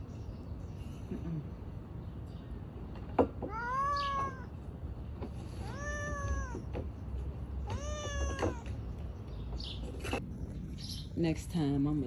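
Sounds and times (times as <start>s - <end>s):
cat meowing: 3.5s - 4.6s, 5.5s - 6.7s, 7.6s - 8.8s.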